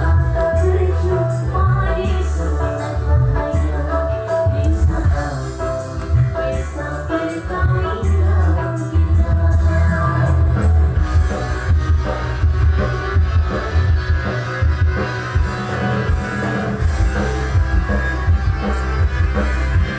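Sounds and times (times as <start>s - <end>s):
loud music with heavy bass: 0.0s - 19.9s.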